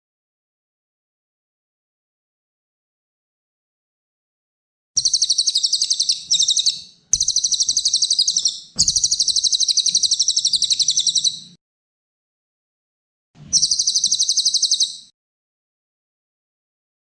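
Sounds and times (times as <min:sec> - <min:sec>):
songbird singing rapid trills: 0:05.0 - 0:11.4, 0:13.6 - 0:15.1.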